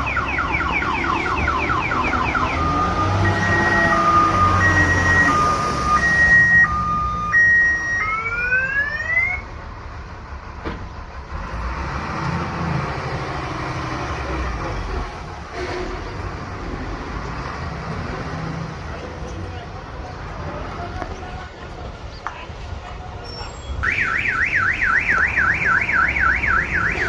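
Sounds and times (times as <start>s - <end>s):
electronic two-tone alarm: 0.0s - 9.1s, 23.8s - 27.0s
rising siren whoops: 0.0s - 9.5s, 23.8s - 27.0s.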